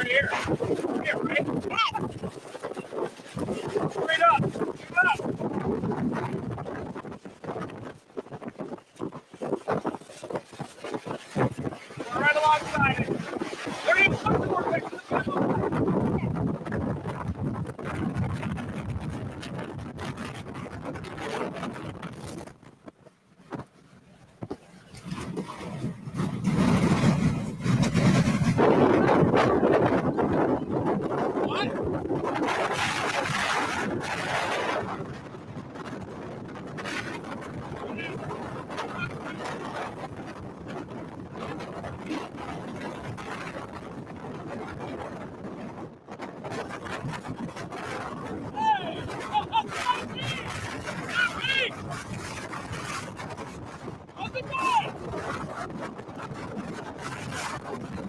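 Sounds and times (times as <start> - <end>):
wind: 0.0 - 58.0
vehicle rumbling: 24.1 - 29.5.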